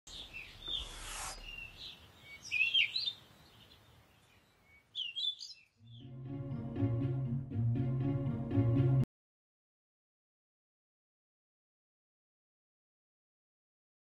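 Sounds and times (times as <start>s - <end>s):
birds chirping: 0.1s - 6.7s
brief hiss: 0.7s - 1.7s
gentle music with low bass: 6.0s - 9.0s.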